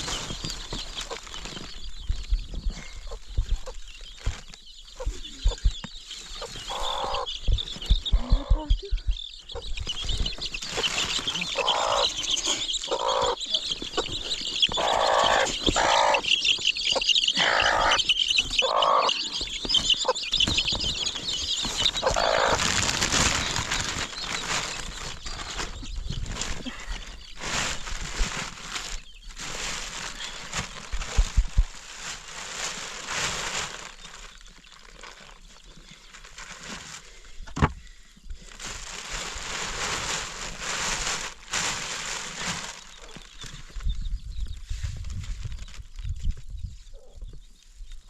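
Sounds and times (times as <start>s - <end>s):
chickens clucking: 0.0s - 34.3s
birds chirping: 0.0s - 48.0s.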